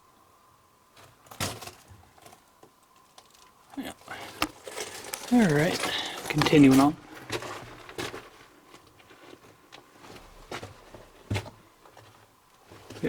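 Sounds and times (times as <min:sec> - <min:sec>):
footsteps on rock and gravel: 0:03.8 - 0:13.0.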